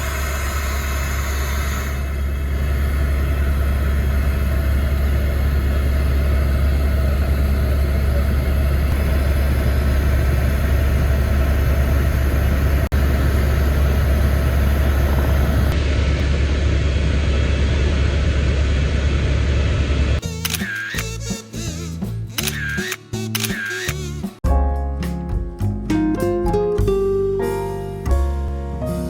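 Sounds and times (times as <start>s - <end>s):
vehicle engine drone: 0.0s - 23.5s.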